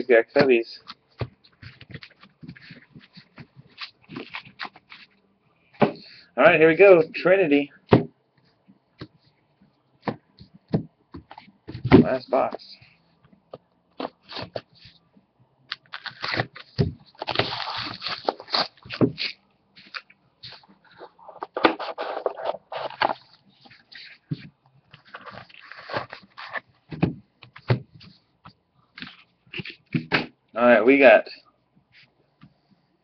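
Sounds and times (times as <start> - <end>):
packaging rustling and tearing: 1.6 - 5.1, 15.7 - 23.9, 25.0 - 26.6.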